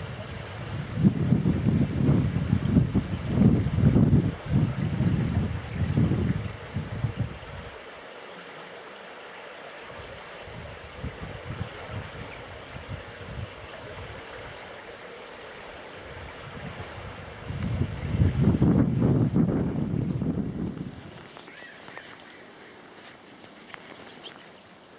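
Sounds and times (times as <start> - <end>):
wind buffeting microphone: 0.0 - 7.8, 9.9 - 14.8, 15.6 - 21.4
water rushing: 0.0 - 24.9.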